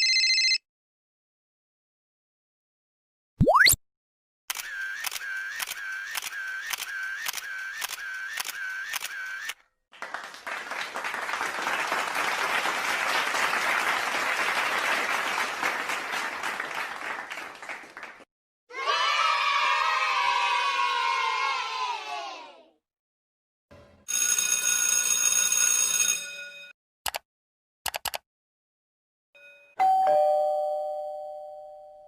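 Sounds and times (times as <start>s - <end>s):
camera shutter clicking: 4.5s - 9.6s
applause: 9.9s - 18.3s.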